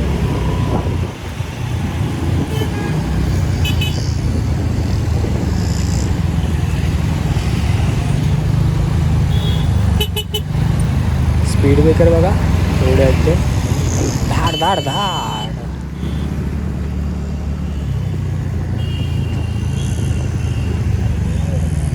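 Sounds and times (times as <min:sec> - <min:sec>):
wind noise: 0:00.0 - 0:09.0, 0:12.4 - 0:14.6
vehicle horn toots: 0:02.4 - 0:04.1, 0:09.3 - 0:10.5, 0:14.4 - 0:16.4, 0:18.7 - 0:20.9.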